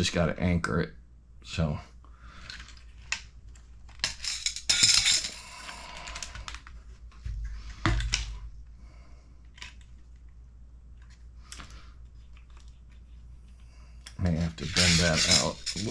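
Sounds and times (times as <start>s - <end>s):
hardware rattling clatter: 14.6s - 15.9s.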